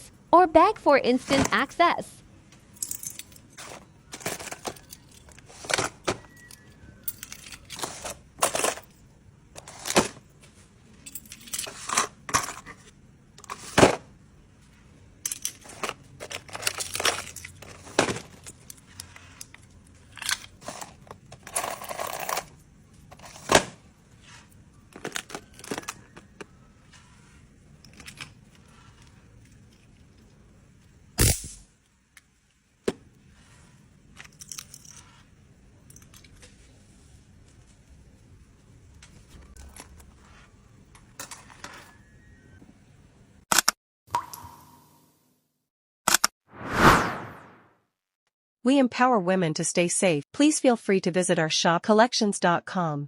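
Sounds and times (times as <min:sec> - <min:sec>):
clicks and clinks of keychain: 0:06.4 - 0:07.9, 0:34.2 - 0:35.2
packaging rustling: 0:24.9 - 0:26.3.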